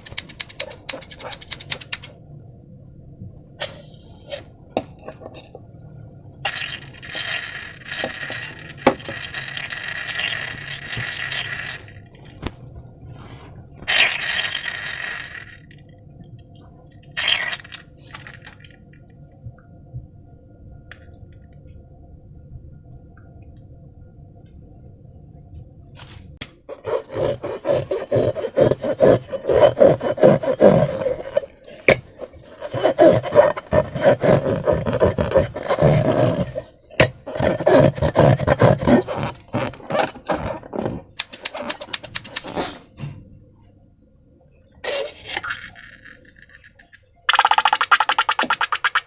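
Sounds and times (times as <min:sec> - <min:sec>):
rapid fine clicks: 0:00.0 - 0:02.1
faint low hum: 0:00.0 - 0:49.0
slime squelching and crackling: 0:26.7 - 0:42.6.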